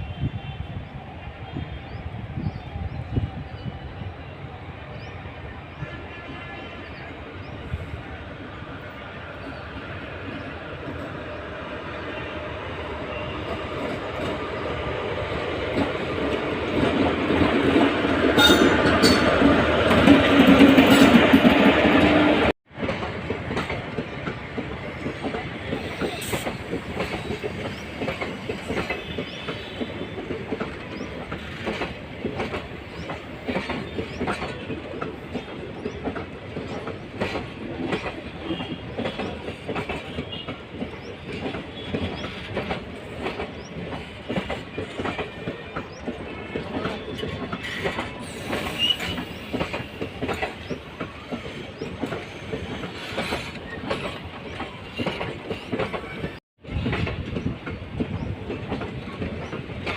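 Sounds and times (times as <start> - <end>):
train wheels clattering: 13.1 - 59.9
faint wheel squeal: 47.6 - 49.6.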